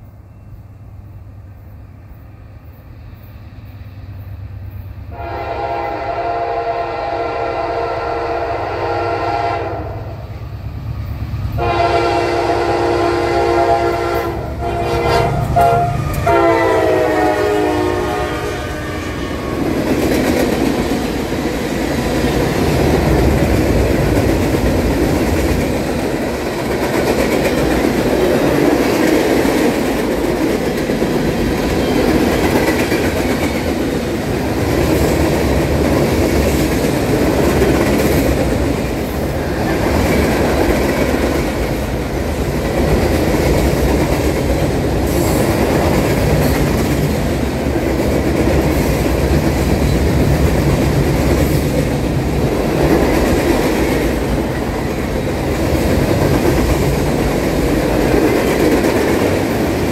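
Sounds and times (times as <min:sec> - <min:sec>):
locomotive air horn blasts: 0:05.1 - 0:10.1, 0:11.6 - 0:19.6.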